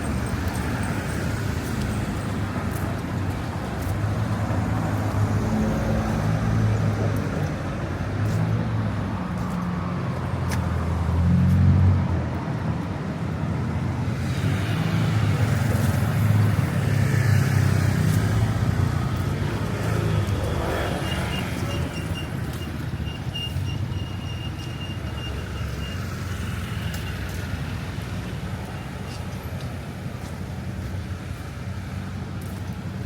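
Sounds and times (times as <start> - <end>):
vehicle engines running: 0.0 - 33.0.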